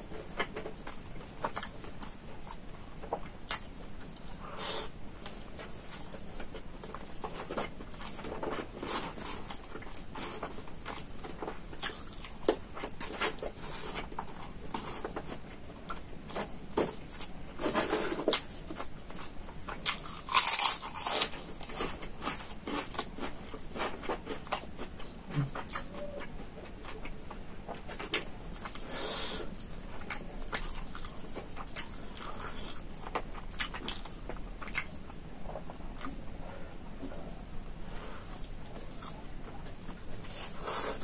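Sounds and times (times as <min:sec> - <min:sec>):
chewing and lip-smacking: 0:00.2 - 0:04.4, 0:05.2 - 0:16.4, 0:29.5 - 0:36.2.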